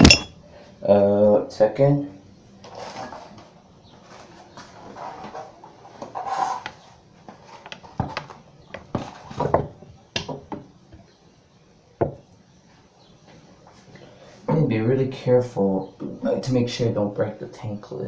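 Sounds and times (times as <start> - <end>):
ceramic toilet lid clinking: 0.0 - 0.3.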